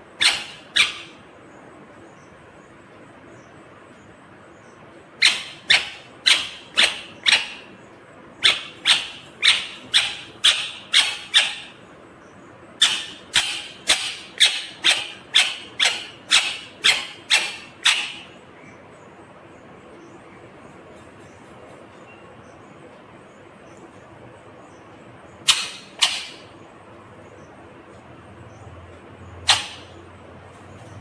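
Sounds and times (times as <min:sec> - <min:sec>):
parakeet shrill calls: 0:00.2 - 0:01.2, 0:05.2 - 0:07.8, 0:08.4 - 0:11.8, 0:12.8 - 0:18.4, 0:25.4 - 0:26.6, 0:29.4 - 0:30.0.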